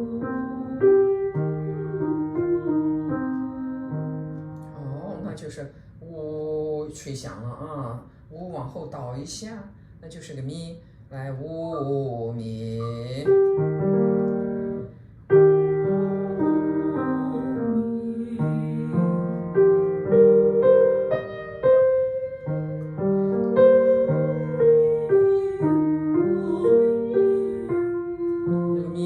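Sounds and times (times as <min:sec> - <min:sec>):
piano playing vocal warm-up notes: 0:00.0 - 0:06.0, 0:12.3 - 0:29.0.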